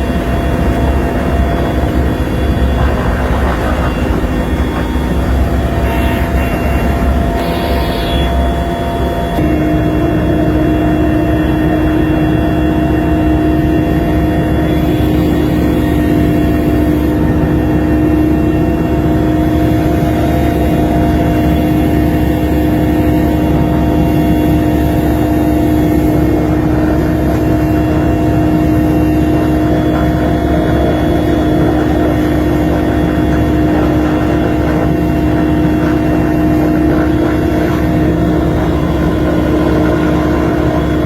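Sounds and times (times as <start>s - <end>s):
engine running steadily: 0.0s - 41.0s.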